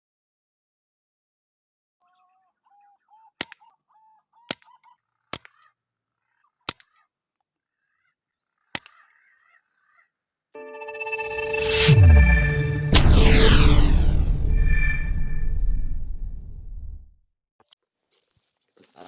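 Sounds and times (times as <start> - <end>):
high-pitched whine: 10.6 - 17.1.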